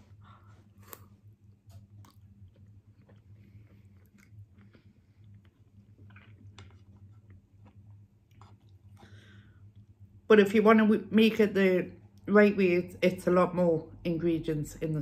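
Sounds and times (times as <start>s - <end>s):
faint chewing: 0.0s - 10.0s
steady low hum: 0.0s - 15.0s.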